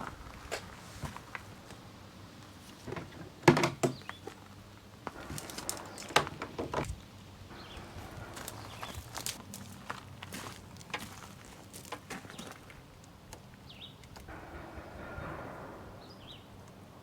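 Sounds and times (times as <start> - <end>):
irregular knocks and clunks: 2.8 - 4.2, 5.0 - 9.4.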